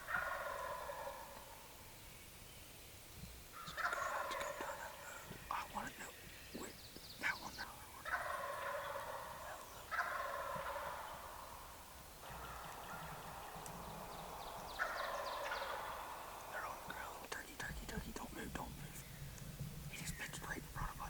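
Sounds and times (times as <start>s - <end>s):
turkeys gobbling: 0.0s - 1.6s, 3.6s - 5.9s, 8.0s - 18.4s.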